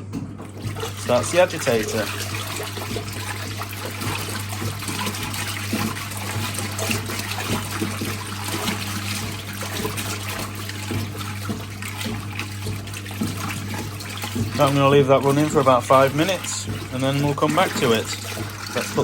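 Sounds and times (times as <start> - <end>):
washing machine motor hum: 0.0 - 19.0
water churning and sloshing: 0.0 - 19.0.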